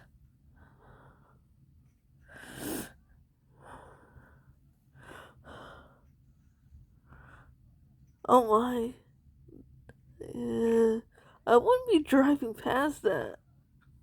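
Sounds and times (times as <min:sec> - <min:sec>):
person breathing: 0:00.6 - 0:01.5, 0:02.3 - 0:06.1.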